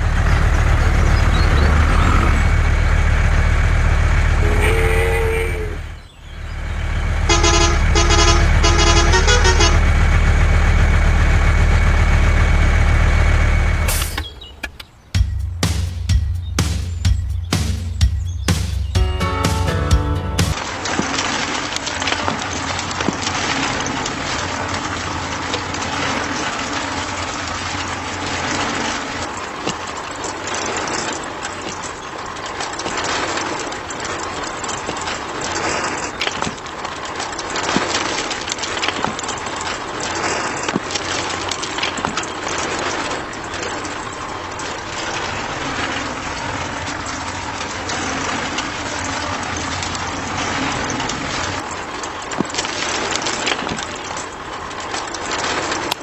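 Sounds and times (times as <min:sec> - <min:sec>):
gritty crackling and clicks: 0:20.5 - 0:56.0.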